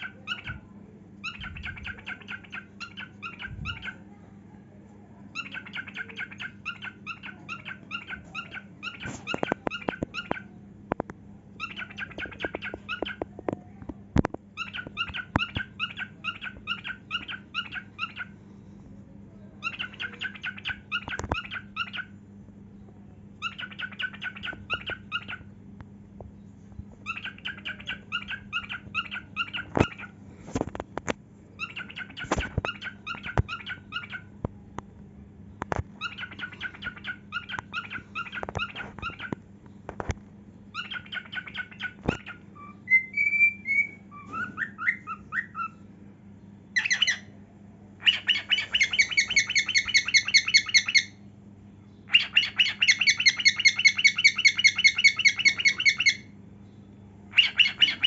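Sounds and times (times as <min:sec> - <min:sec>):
cockatiel chirping: 0:00.0 - 0:00.6, 0:01.2 - 0:04.0, 0:05.3 - 0:10.5, 0:11.6 - 0:13.2, 0:14.6 - 0:18.3, 0:19.6 - 0:22.1, 0:23.4 - 0:25.5, 0:27.0 - 0:30.1, 0:31.6 - 0:34.3, 0:36.0 - 0:39.4, 0:40.7 - 0:45.8, 0:46.8 - 0:47.3, 0:48.0 - 0:51.2, 0:52.1 - 0:56.3, 0:57.3 - 0:58.0
steady low hum: 0:00.0 - 0:58.0.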